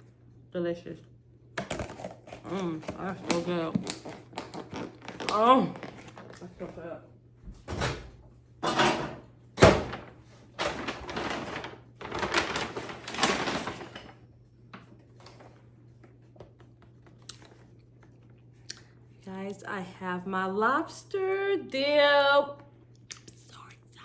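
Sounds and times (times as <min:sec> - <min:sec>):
food containers rustling: 0:01.6 - 0:06.8, 0:08.6 - 0:14.2.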